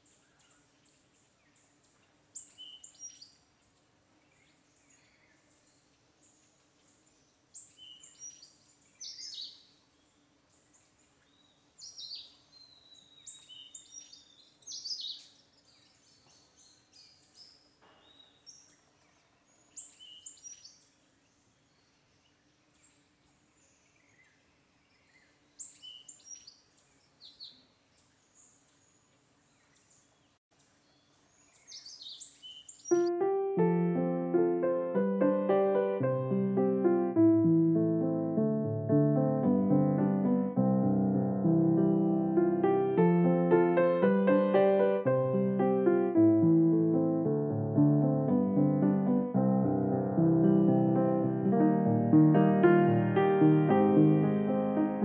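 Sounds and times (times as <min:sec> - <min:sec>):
small birds chirping: 0:00.0 - 0:38.5
piano music: 0:32.9 - 0:55.0.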